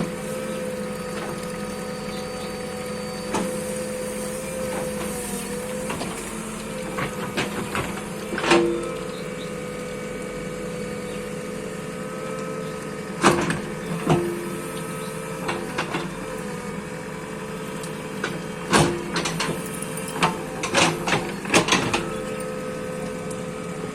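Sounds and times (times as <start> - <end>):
bulldozer diesel engine running: 0.0 - 23.9.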